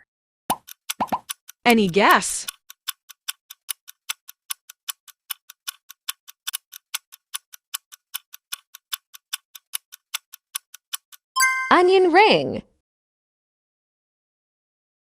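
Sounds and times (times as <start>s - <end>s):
clock ticking: 0.5s - 11.6s.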